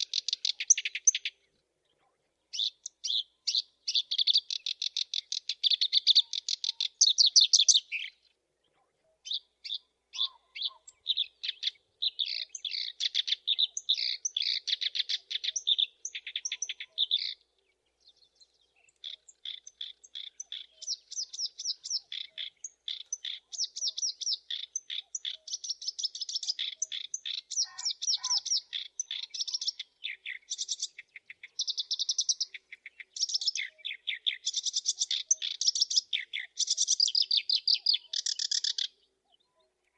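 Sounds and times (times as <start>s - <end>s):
warbler singing chattering runs: 0.0s - 1.3s, 9.3s - 17.4s, 18.9s - 38.9s.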